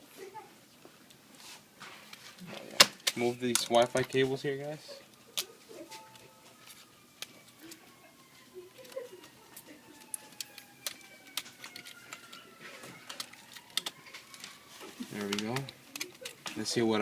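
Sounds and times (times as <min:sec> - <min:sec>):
clicks and taps of laptop parts: 0:10.0 - 0:14.6, 0:15.2 - 0:16.6.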